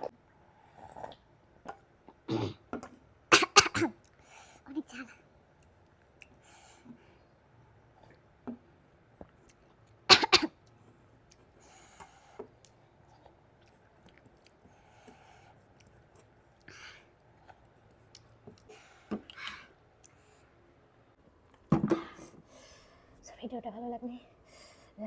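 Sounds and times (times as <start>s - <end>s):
soft chewing: 5.5s - 7.2s, 7.8s - 21.6s.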